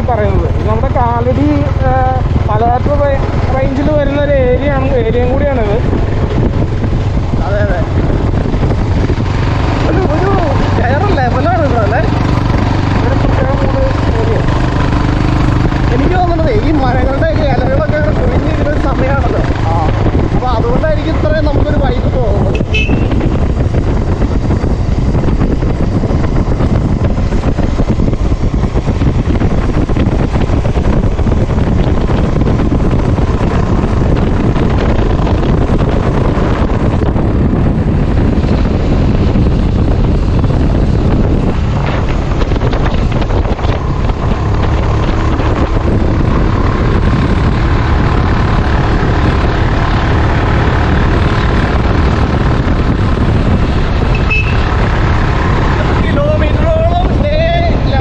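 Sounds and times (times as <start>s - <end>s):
motorbike engine and road noise: 0.0s - 58.0s
wind buffeting microphone: 0.0s - 58.0s.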